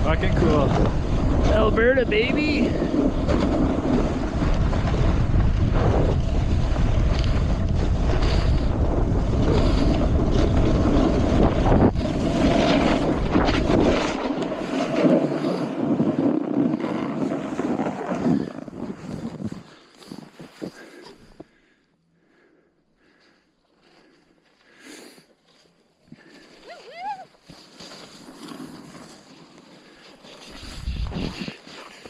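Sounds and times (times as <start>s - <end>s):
heavy low rumble: 0.0s - 14.2s
wind rushing over microphone: 0.0s - 20.8s, 30.5s - 31.6s
snowboard scraping on snow: 0.0s - 21.4s, 24.7s - 32.0s.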